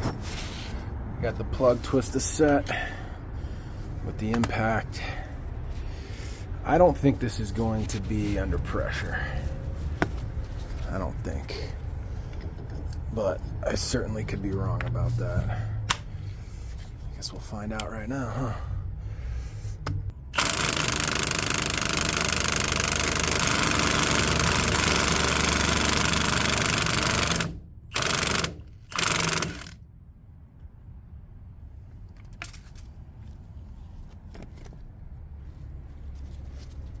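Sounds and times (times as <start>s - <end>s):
impact driver hammering: 20.4s - 29.8s.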